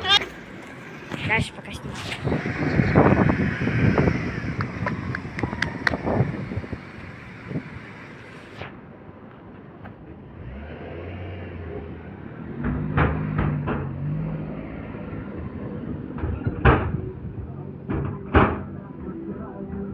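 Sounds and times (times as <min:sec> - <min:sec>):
vehicle engine pulling away: 0:00.7 - 0:08.7, 0:10.2 - 0:16.5.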